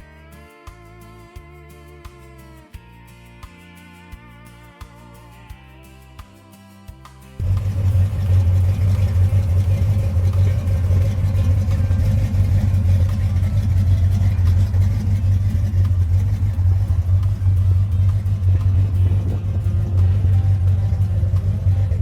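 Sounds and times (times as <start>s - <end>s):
car engine deep exhaust note: 7.4s - 22.0s.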